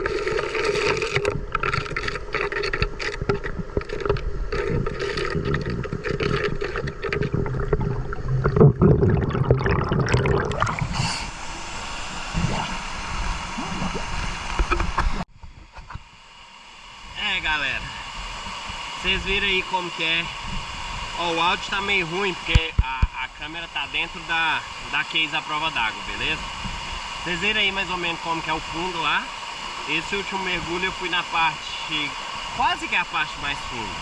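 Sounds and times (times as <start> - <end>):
water sloshing and gurgling: 0.0 - 15.2
steady hiss: 10.7 - 34.0
muffled clicks and knocks: 14.5 - 16.0.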